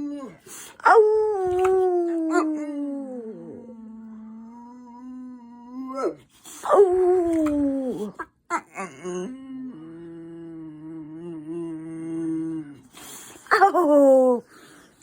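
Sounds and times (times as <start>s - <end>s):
dog howling: 0.0s - 9.3s.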